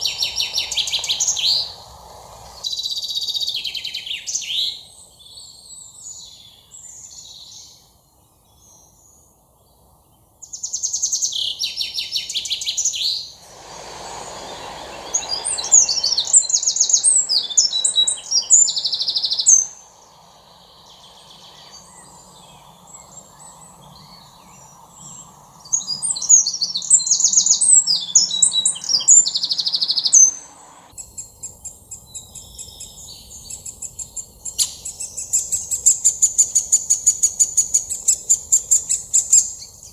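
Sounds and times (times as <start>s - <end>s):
songbirds trilling: 0.0s - 2.6s, 13.6s - 30.9s.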